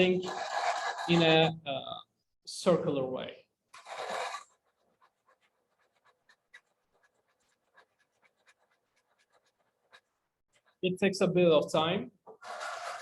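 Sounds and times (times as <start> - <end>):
sandpaper scratching on plastic: 0.0 - 1.5, 3.8 - 10.8, 12.4 - 13.0.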